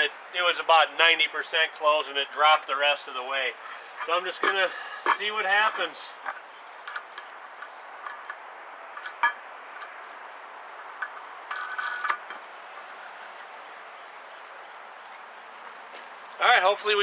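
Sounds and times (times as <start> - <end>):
clicks and clinks of handling: 3.6 - 10.0, 10.8 - 13.3
squeaky creak: 10.8 - 13.5.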